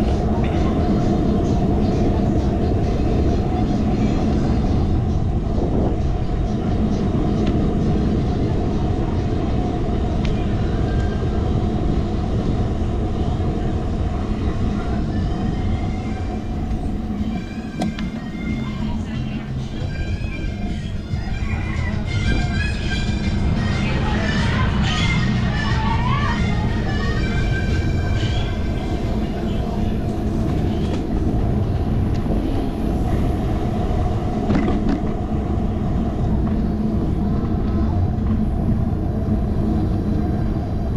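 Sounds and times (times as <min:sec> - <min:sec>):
bicycle tyre and road noise: 0:00.0 - 0:40.9
steady hum: 0:00.0 - 0:40.9
wind rumble on microphone: 0:00.0 - 0:40.9.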